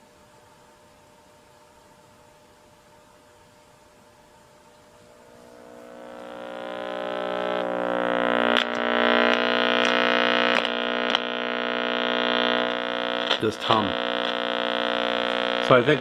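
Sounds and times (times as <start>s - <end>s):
radio speaker mains hum: 0.0s - 16.0s
sharp clicks: 8.5s - 11.3s.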